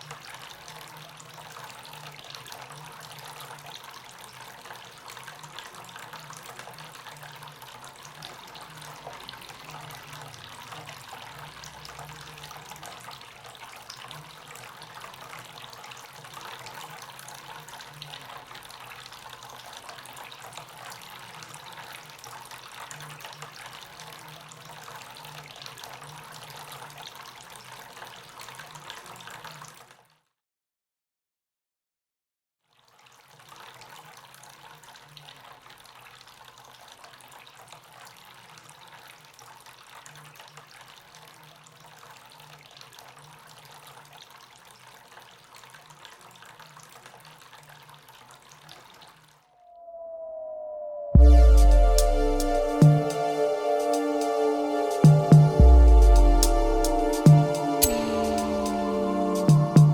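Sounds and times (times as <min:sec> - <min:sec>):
fountain water trickling and splashing: 0:00.0 - 0:30.2, 0:32.7 - 0:49.4.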